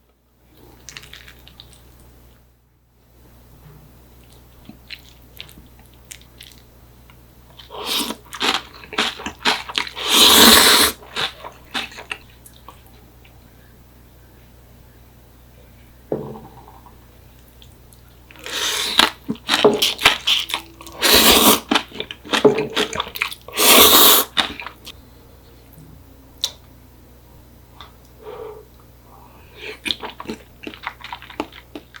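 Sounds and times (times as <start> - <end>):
wet chewing and mouth clicks: 4.2 - 6.7, 17.5 - 23.6, 29.7 - 32.0
noodle slurps: 7.6 - 12.1, 19.8 - 21.7, 22.8 - 24.7.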